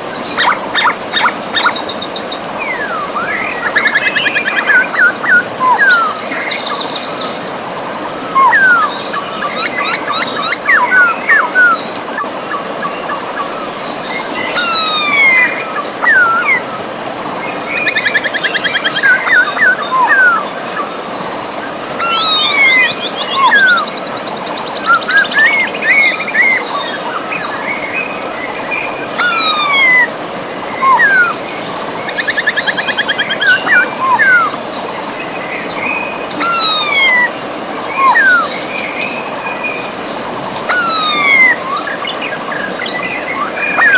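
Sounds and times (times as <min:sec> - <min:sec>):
birds whistling: 0:00.0 - 0:07.3, 0:08.2 - 0:16.6, 0:17.6 - 0:21.4, 0:22.0 - 0:26.8, 0:28.7 - 0:39.8
river water rushing: 0:00.0 - 0:43.9
bird trills: 0:00.3 - 0:02.0.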